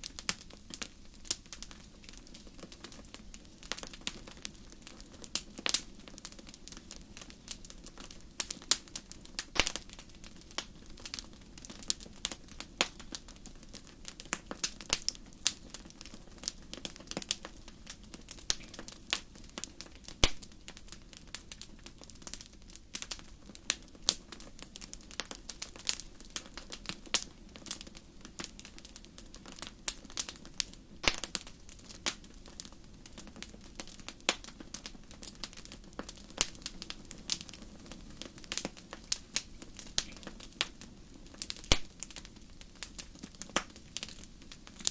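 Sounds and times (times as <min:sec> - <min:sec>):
wood fire crackling: 0:00.0 - 0:44.9.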